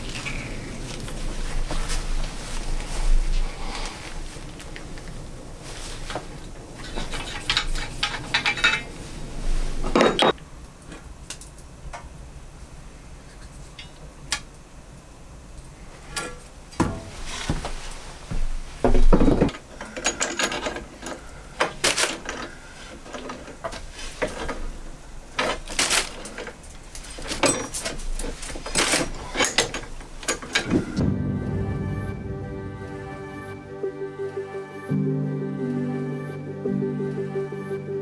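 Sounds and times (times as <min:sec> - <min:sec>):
hard objects knocking and scraping: 0:00.0 - 0:11.0, 0:16.0 - 0:31.0.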